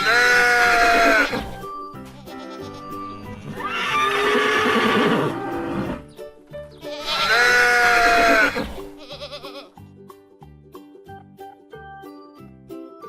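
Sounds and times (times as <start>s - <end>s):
farm animal calls: 0.0s - 1.6s, 2.2s - 6.0s, 6.8s - 9.7s
children's music with steady beat: 1.1s - 3.8s, 5.4s - 8.2s, 8.8s - 13.0s.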